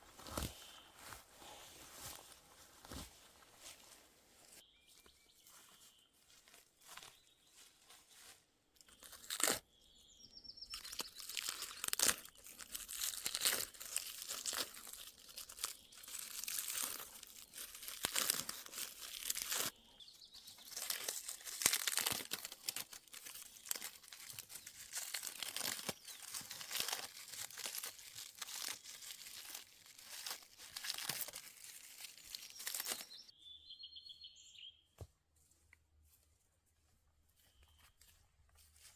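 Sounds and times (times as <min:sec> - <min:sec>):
bird chirping: 0:04.6 - 0:06.4, 0:09.6 - 0:12.7, 0:19.7 - 0:21.0, 0:24.6 - 0:26.5, 0:31.9 - 0:35.0, 0:37.4 - 0:38.2
dry plant material crunching: 0:05.4 - 0:09.8, 0:10.6 - 0:33.3.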